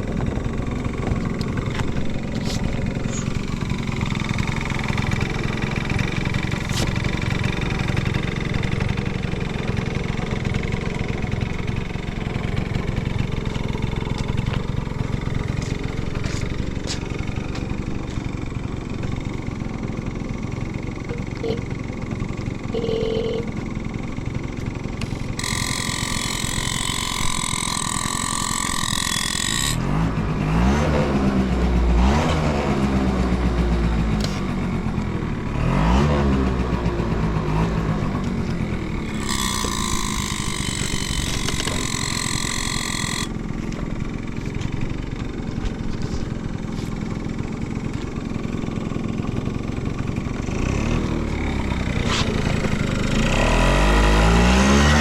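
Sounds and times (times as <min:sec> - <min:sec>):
scooter engine revving: 0:00.0 - 0:55.0.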